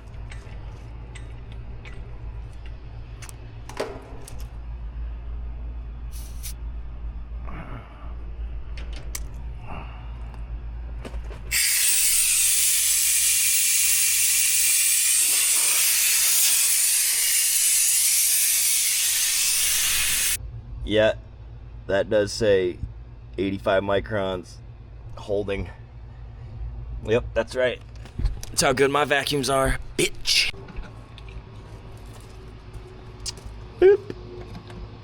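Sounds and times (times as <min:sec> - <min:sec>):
steady low hum: 0:00.0 - 0:35.0
loud hiss of gas: 0:06.1 - 0:06.6, 0:11.5 - 0:20.4.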